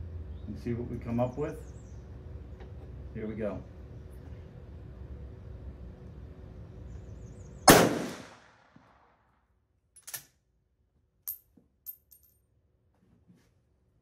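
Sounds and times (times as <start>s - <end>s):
rifle shot with ringing tail: 7.6s - 9.1s.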